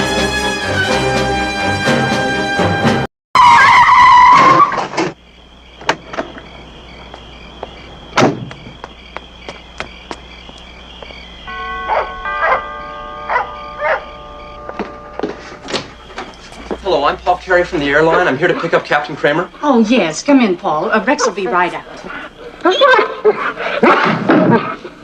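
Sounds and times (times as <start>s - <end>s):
brass music: 0.0s - 4.4s, 11.4s - 19.5s
car tires squealing: 3.4s - 5.0s
short ringing tones: 11.4s - 17.4s.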